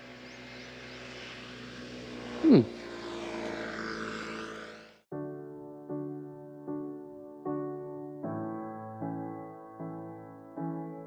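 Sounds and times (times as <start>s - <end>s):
fast downward sweep: 0.7s - 4.9s
piano music: 5.1s - 11.0s.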